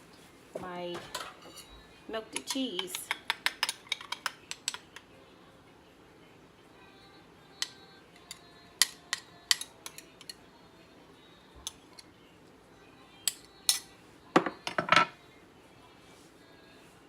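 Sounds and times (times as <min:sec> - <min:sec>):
utensils clinking against dishes: 0:00.9 - 0:05.1, 0:07.6 - 0:10.4, 0:11.6 - 0:12.1, 0:13.2 - 0:15.2.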